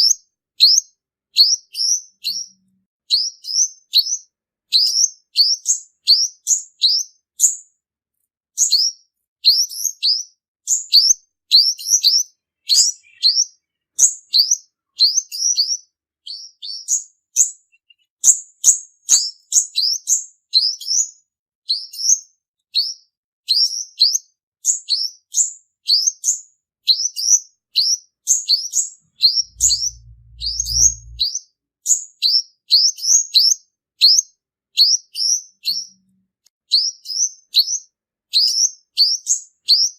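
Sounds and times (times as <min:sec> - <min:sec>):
sunbird singing high chirps: 0:08.6 - 0:18.4, 0:27.0 - 0:31.3
low hum: 0:29.1 - 0:31.3.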